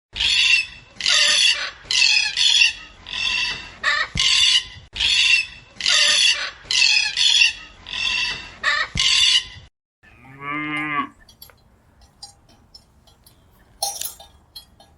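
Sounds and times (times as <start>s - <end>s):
chicken squawking: 0.2s - 9.6s.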